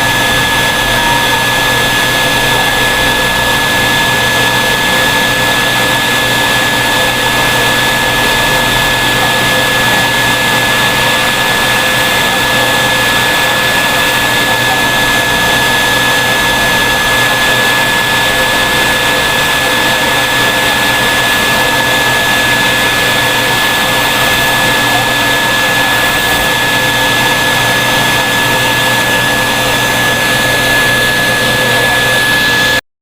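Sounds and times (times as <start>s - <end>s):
vacuum cleaner whining: 0.0s - 32.8s.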